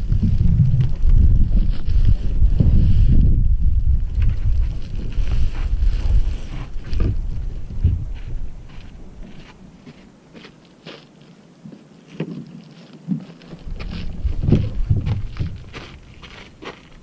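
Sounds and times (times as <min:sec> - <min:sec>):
wind buffeting microphone: 0:00.0 - 0:10.0, 0:13.1 - 0:17.0
handling knocks and rustles: 0:11.7 - 0:17.0.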